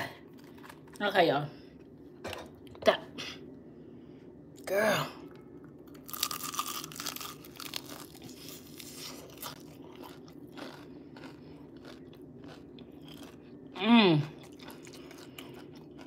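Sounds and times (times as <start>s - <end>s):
crunching fried chicken: 5.9s - 16.0s.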